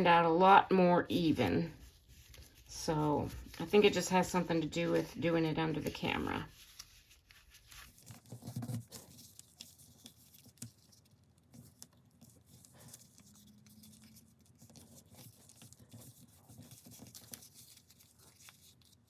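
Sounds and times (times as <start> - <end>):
paper being folded and creased: 1.2 - 19.0.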